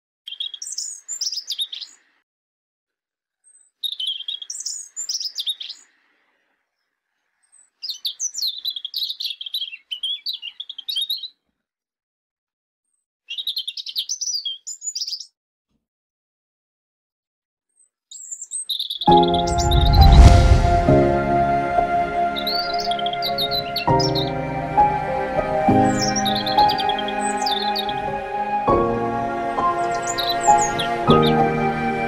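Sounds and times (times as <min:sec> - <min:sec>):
songbird chirping and warbling: 0:00.3 - 0:02.0, 0:03.5 - 0:06.0, 0:07.4 - 0:11.4, 0:13.3 - 0:15.4, 0:17.8 - 0:32.0.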